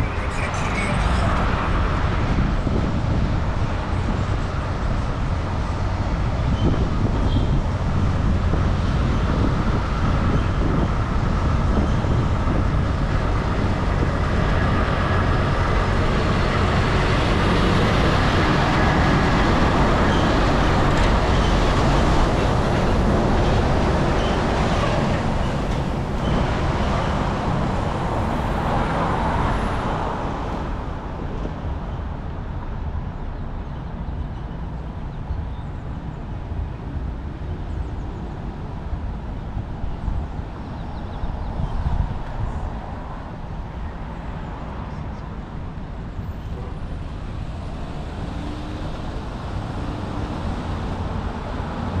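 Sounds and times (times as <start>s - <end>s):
passing vehicles hissing: 0.0s - 32.3s
heavy low traffic rumble: 0.0s - 52.0s.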